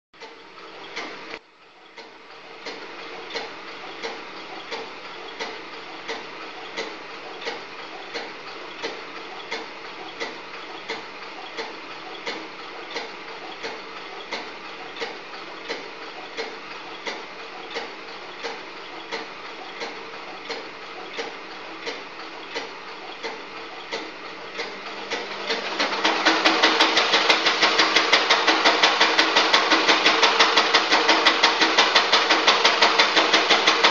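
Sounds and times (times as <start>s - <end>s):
washing machine running: 0.2s - 33.9s
washing machine knocking rattle: 24.6s - 33.9s.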